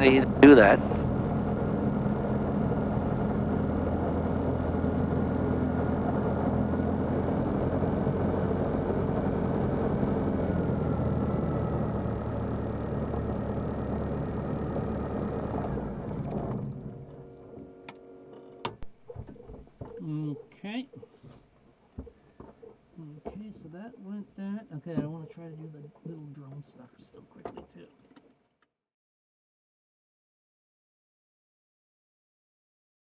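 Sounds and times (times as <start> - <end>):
light aircraft engine droning: 0.0 - 16.4.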